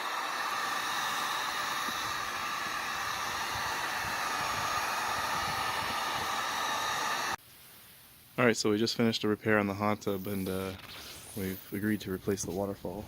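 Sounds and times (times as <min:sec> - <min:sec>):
heat gun blowing hiss: 0:00.0 - 0:07.4, 0:10.9 - 0:11.9.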